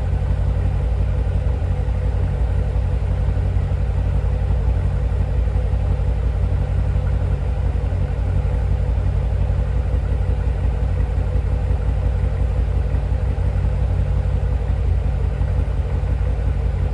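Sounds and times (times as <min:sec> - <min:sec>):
car engine idling: 0:00.0 - 0:16.9.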